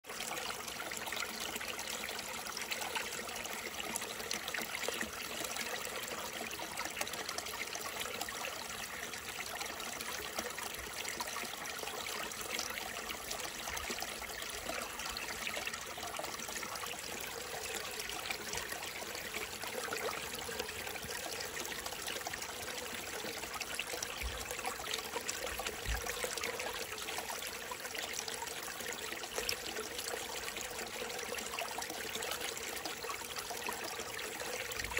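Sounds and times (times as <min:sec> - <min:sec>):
stream trickling over rocks: 0:00.0 - 0:34.9.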